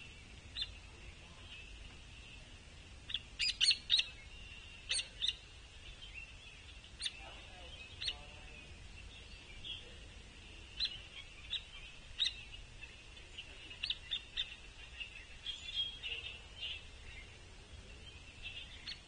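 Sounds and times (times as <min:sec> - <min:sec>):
faint high background noise: 0:00.0 - 0:19.0
woodpecker calls: 0:03.1 - 0:10.0, 0:10.6 - 0:17.4.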